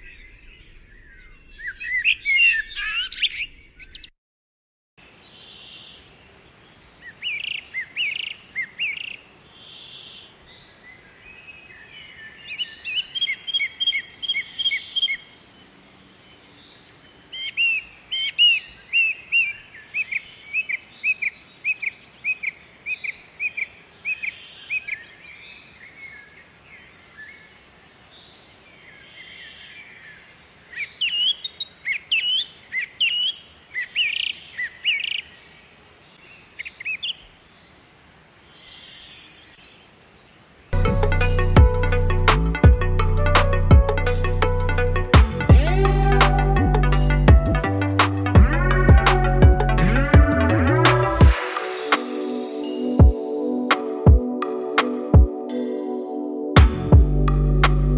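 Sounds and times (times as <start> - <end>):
bird chirping: 0.0 - 4.1, 43.2 - 52.8.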